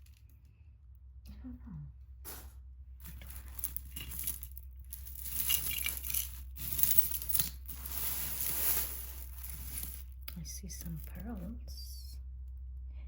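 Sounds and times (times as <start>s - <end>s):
jewelry clinking and rattling: 2.3s - 11.8s.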